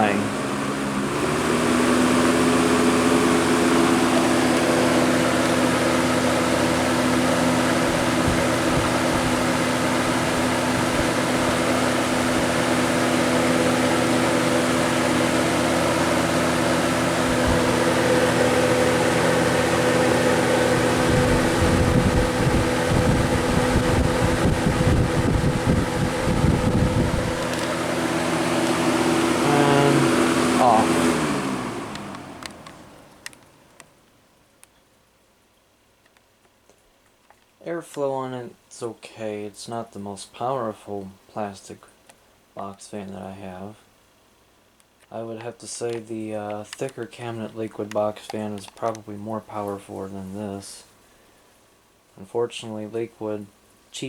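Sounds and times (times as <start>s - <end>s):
box fan running: 0.0s - 34.1s, 45.0s - 51.6s.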